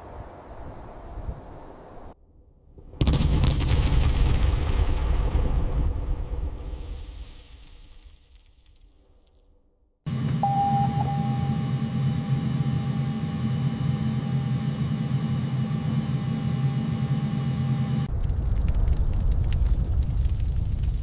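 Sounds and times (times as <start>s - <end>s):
thin high whine: 10.1s - 18.1s
low rumble: 18.0s - 21.0s.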